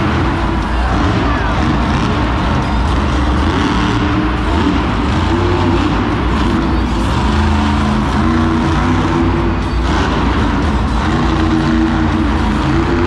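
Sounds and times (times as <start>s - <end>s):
echoing crowd noise: 0.0s - 13.0s
monster truck engine revving: 0.0s - 13.0s.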